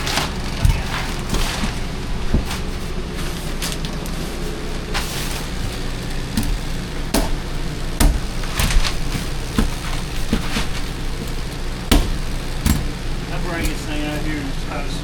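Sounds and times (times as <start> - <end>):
low mechanical hum: 0.0 - 15.0
objects knocking and clattering: 8.0 - 13.9.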